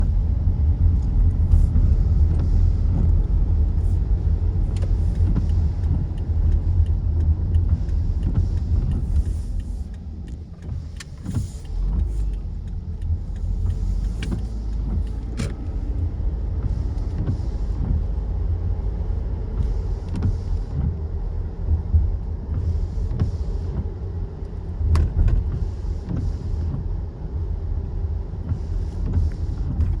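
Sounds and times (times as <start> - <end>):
traffic rumble: 0.0 - 30.0
tyres hissing on wet road: 7.7 - 9.9, 10.6 - 12.5.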